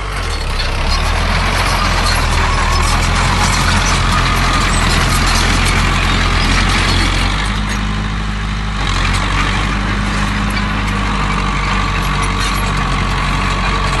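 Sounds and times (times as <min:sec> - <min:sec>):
heavy diesel engine running: 0:00.0 - 0:14.0.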